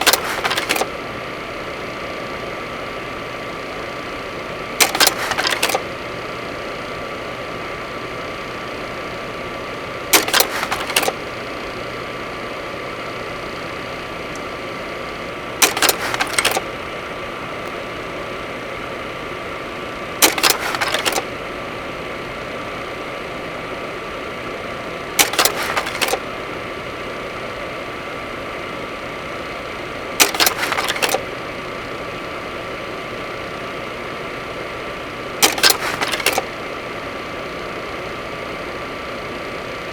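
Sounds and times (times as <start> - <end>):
short burst of clicks: 0.0 - 0.9, 4.8 - 5.9, 10.1 - 11.2, 15.6 - 16.7, 20.2 - 21.3, 25.2 - 26.2, 30.2 - 31.2, 35.4 - 36.5.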